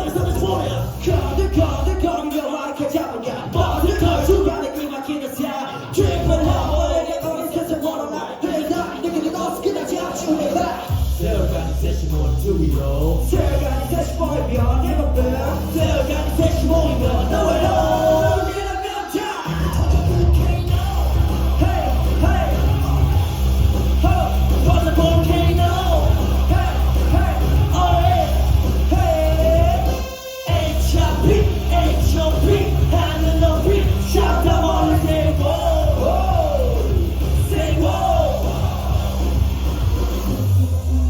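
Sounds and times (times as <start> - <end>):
voices singing: 0.0 - 40.6
live pop music with heavy bass: 0.0 - 41.0
crowd yelling: 15.3 - 41.0.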